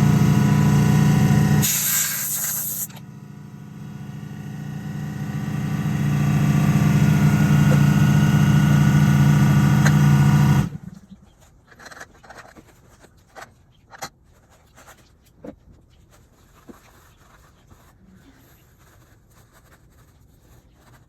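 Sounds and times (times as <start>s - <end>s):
scooter engine idling: 0.0s - 1.8s, 2.8s - 10.8s
loud hiss: 1.6s - 2.9s.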